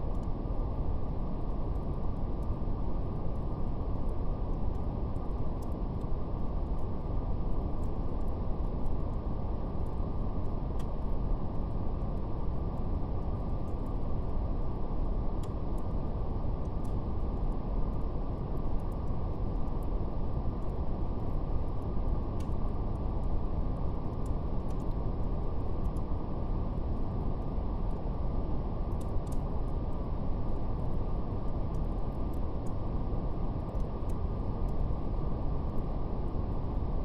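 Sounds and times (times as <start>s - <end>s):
brown noise hiss: 0.0s - 37.0s
fire crackling: 15.0s - 26.1s.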